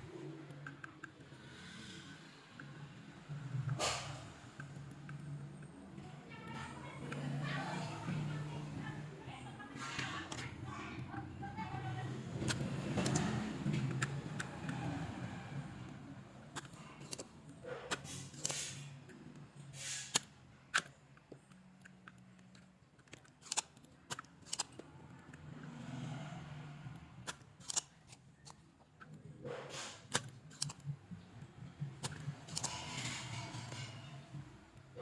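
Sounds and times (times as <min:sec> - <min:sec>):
hand tools and metal parts clicking: 0:09.8 - 0:35.0.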